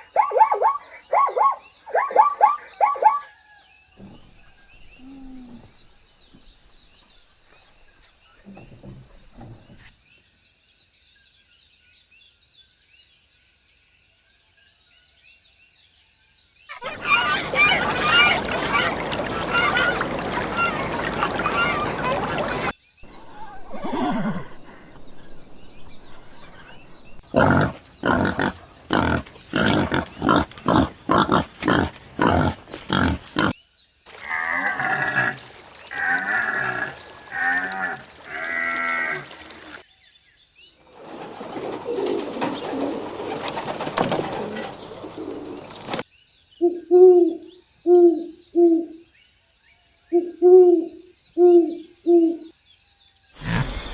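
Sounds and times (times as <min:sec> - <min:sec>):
flock of geese honking: 0:16.7 - 0:22.7
pitched wavering animal calls: 0:16.7 - 0:22.7, 0:34.1 - 0:39.8
sharp animal calls: 0:16.7 - 0:22.7, 0:34.1 - 0:39.8
owl hooting: 0:16.8 - 0:22.7.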